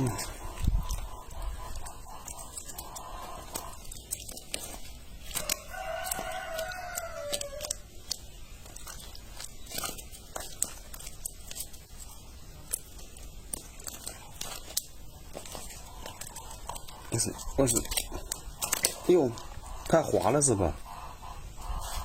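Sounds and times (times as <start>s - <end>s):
rooster crowing: 5.3s - 7.8s.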